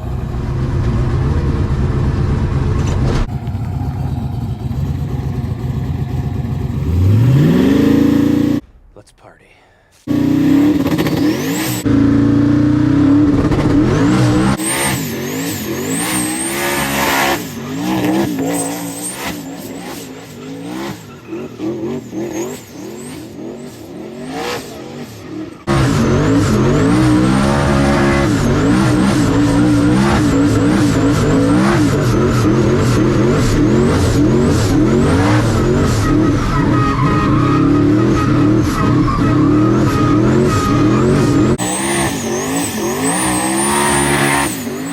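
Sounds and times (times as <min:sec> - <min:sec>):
race car engine revving: 0:00.0 - 0:08.6, 0:10.1 - 0:44.9
tires squealing: 0:10.1 - 0:12.0, 0:13.1 - 0:44.9.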